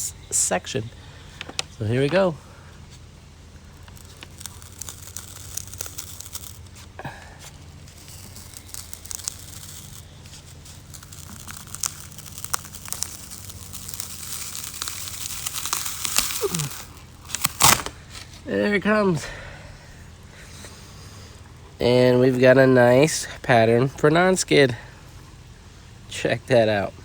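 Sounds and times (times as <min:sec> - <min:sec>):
steady low hum: 0:00.0 - 0:27.0
mold crackling and tearing: 0:01.0 - 0:19.0.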